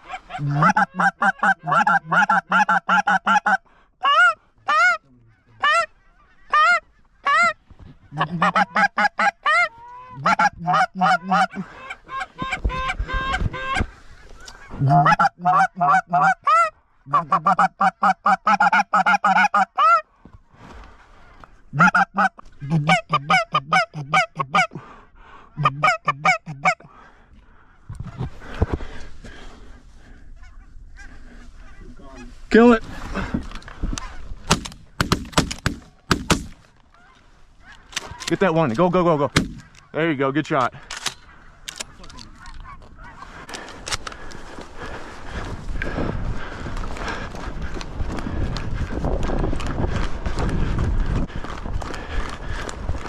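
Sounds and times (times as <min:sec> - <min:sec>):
goose honking and clucking: 0:00.0 - 0:20.1, 0:21.2 - 0:24.8, 0:25.5 - 0:27.0, 0:28.0 - 0:28.4, 0:30.0 - 0:34.3, 0:36.9 - 0:38.9, 0:41.2 - 0:43.7.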